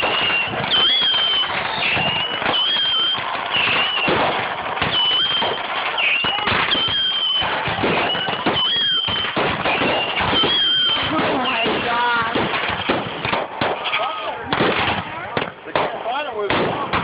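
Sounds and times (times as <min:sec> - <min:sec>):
high firework whistles: 0:00.0 - 0:12.1
fireworks bangs and crackling: 0:00.0 - 0:17.0.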